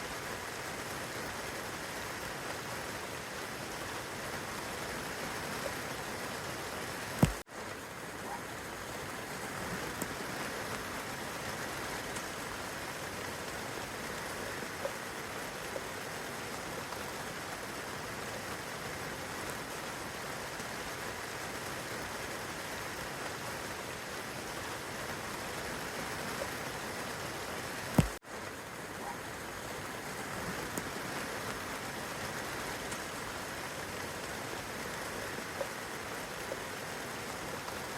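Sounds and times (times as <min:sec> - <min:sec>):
rain on foliage and grass: 0:00.0 - 0:37.9
faint water drips: 0:25.8 - 0:37.9.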